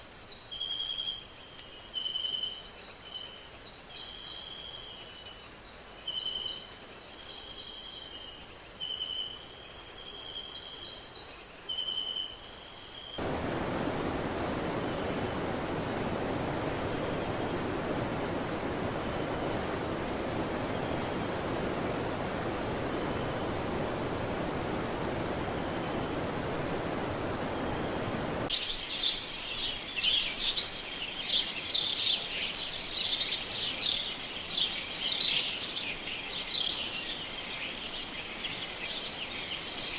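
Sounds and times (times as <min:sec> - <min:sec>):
insect trill: 0:00.0 - 0:39.9
rushing noise: 0:13.2 - 0:28.5
chorus of bird chirps: 0:27.1 - 0:39.9.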